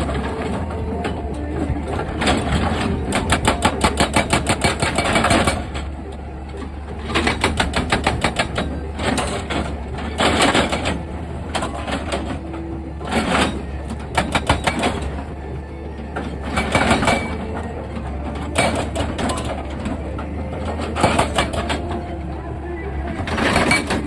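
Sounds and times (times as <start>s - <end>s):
excavator running: 0.0s - 24.0s
rapid mechanical knocking: 2.2s - 5.9s, 7.1s - 12.4s.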